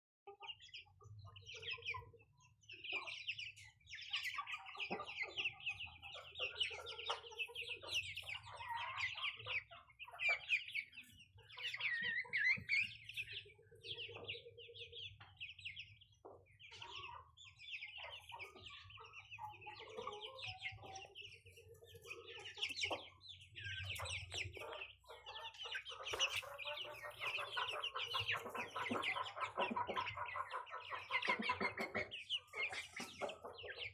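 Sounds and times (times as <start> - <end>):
chicks peeping: 0.3 - 33.9
low clucking calls: 21.8 - 33.8.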